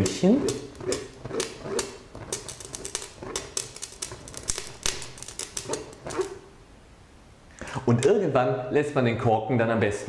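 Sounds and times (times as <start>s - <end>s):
burning plastic drops hissing: 0.0s - 6.5s.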